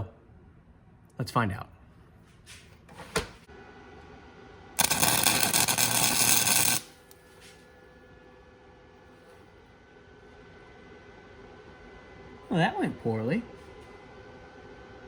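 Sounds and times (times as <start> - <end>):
welder arc crackling: 4.8 - 7.2.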